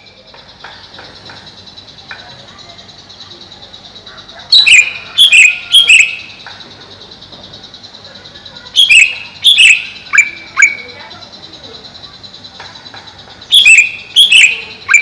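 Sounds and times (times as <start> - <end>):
bird giving sharp calls: 4.3 - 6.7, 8.4 - 15.0.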